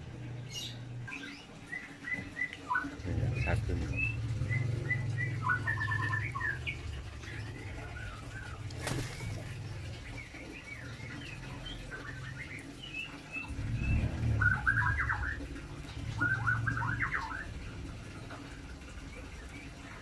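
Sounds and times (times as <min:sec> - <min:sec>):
birds chirping: 0:00.0 - 0:20.0
low rumble: 0:13.4 - 0:19.8.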